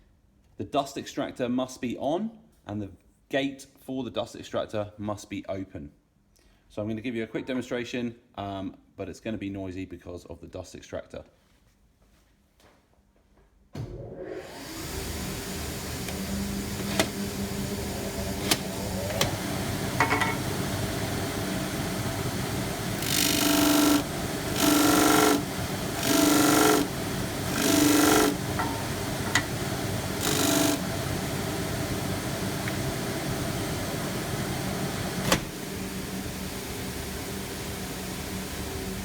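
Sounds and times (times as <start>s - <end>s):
dust extractor and sander droning: 14.1s - 39.0s
sanding strokes on workpiece: 23.0s - 30.9s.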